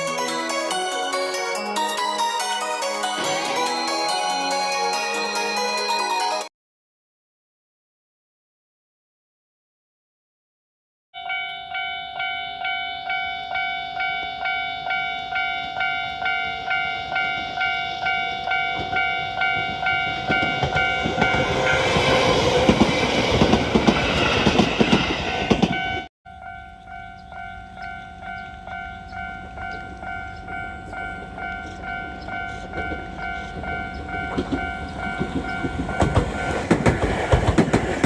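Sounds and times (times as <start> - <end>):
level crossing bell ringing: 0.0 - 6.5, 11.2 - 22.2
train rumbling past: 14.4 - 38.0.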